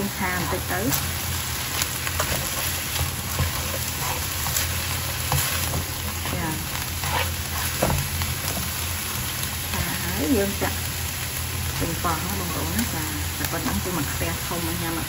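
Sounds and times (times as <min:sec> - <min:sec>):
meat and onions sizzling in pan: 0:00.0 - 0:15.0
spatula scraping a pan: 0:01.6 - 0:08.8.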